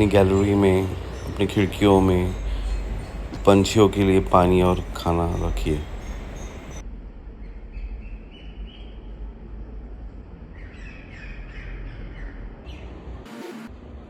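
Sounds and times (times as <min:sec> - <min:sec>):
birds chirping: 0:00.0 - 0:06.8, 0:10.5 - 0:13.2
low background hum: 0:00.0 - 0:13.2.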